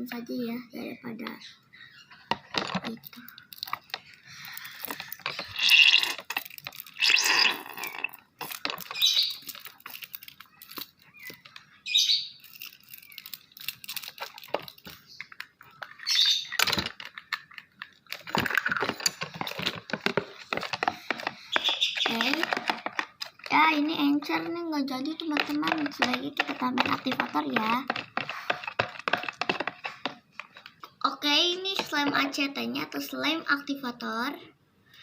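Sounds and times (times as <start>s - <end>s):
slime squishing while stirred: 3.0s - 11.8s, 12.4s - 16.5s, 17.1s - 33.0s.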